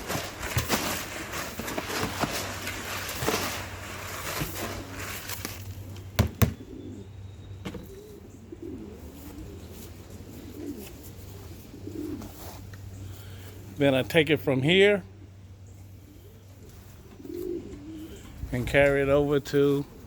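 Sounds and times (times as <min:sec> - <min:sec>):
pigeons cooing: 0:00.0 - 0:13.8, 0:14.5 - 0:20.0
sharp knocks: 0:06.2 - 0:06.6.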